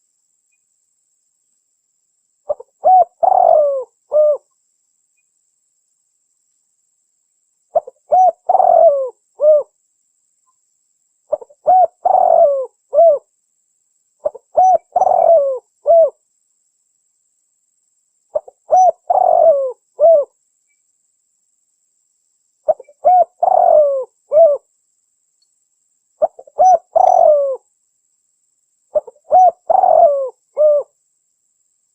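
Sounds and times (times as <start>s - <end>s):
dove cooing: 2.5s - 4.5s, 7.7s - 9.7s, 11.3s - 13.3s, 14.2s - 16.2s, 18.3s - 20.3s, 22.7s - 24.7s, 26.2s - 27.6s, 28.9s - 30.9s.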